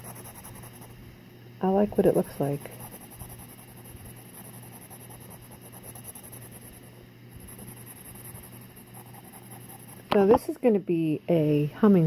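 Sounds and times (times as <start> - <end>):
pencil scratching on paper: 0.0 - 1.0, 2.0 - 10.1.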